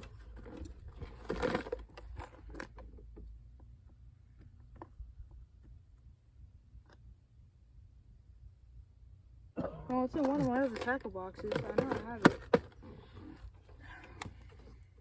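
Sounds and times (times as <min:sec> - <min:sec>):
low steady rumble: 0:00.0 - 0:15.0
plastic box clicks and rattles: 0:10.2 - 0:12.8.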